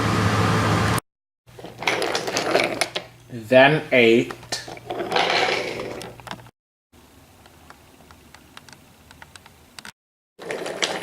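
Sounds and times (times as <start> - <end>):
wooden toy train cars clattering: 1.6 - 3.0, 10.4 - 11.0.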